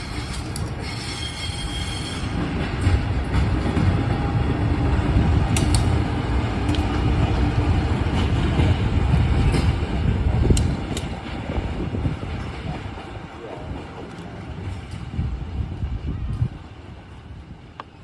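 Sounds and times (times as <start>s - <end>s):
train rumbling along track: 0.0s - 18.0s.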